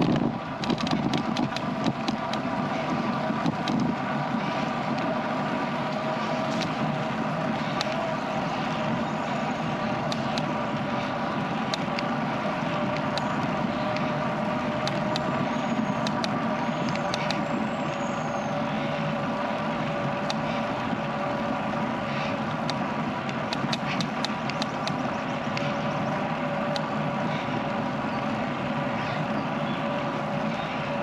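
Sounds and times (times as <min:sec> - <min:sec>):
bicycle tyre and wind hum: 0:00.0 - 0:31.0
light clicks: 0:10.0 - 0:10.6, 0:12.8 - 0:17.5, 0:22.4 - 0:25.9.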